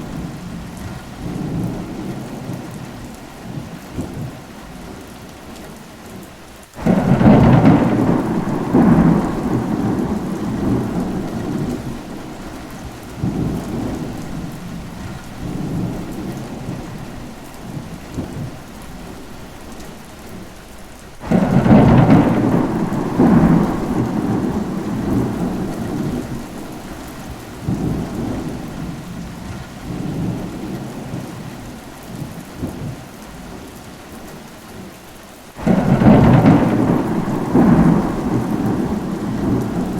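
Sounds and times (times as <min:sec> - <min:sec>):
steady rain falling: 0:00.0 - 0:39.9
thunder rolling: 0:06.8 - 0:19.5, 0:21.1 - 0:33.0, 0:35.6 - 0:39.9.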